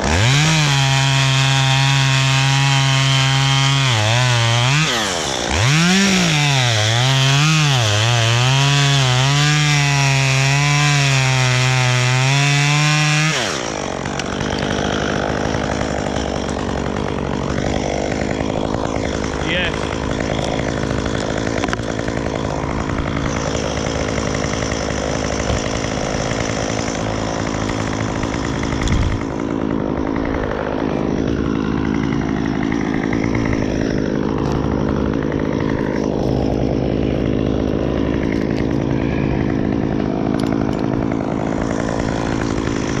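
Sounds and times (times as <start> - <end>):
chainsaw running: 0.0 - 43.0.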